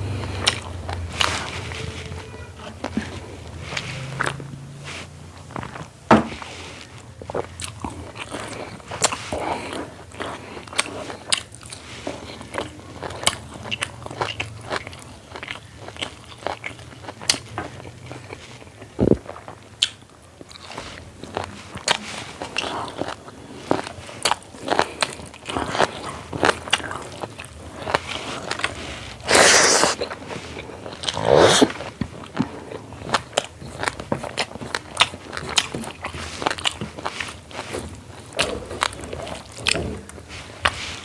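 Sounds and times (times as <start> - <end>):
person chewing food: 7.3 - 39.8.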